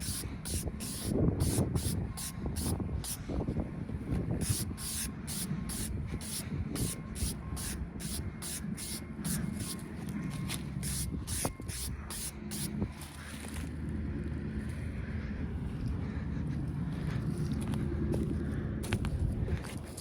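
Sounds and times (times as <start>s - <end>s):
rhythmic hiss: 0.0s - 3.2s, 4.4s - 9.9s.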